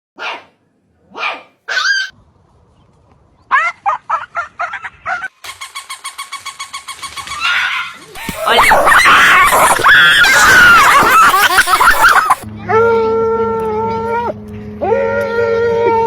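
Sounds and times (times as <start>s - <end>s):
dog yelping: 1.1s - 2.1s, 7.4s - 12.4s.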